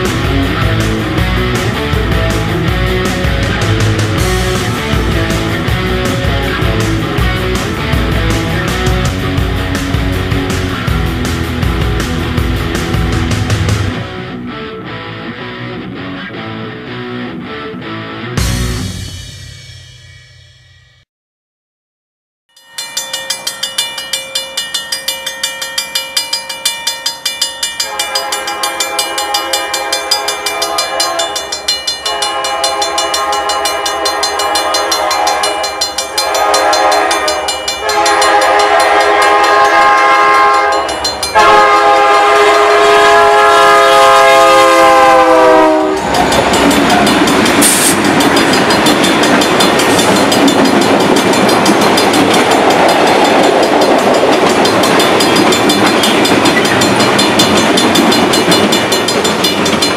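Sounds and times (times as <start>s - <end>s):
crossing bell ringing rapidly: 0.0s - 13.9s, 22.5s - 59.9s
train rumbling across crossing: 0.0s - 14.5s, 22.6s - 59.9s
train air horn blasts: 27.8s - 48.1s.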